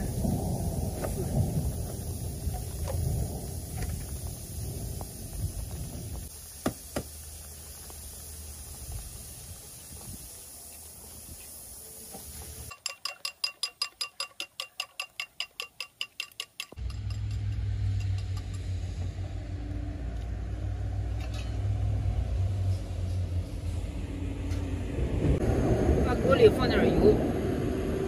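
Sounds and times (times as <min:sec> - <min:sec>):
steady low rumble: 0:00.0 - 0:06.4, 0:16.8 - 0:28.0
eggs beaten in a bowl: 0:12.7 - 0:17.2.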